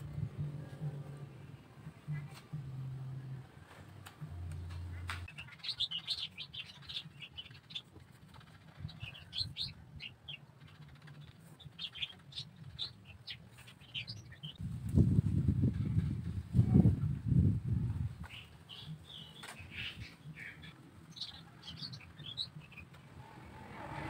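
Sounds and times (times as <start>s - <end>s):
small birds twittering: 4.9s - 14.6s, 18.2s - 23.2s.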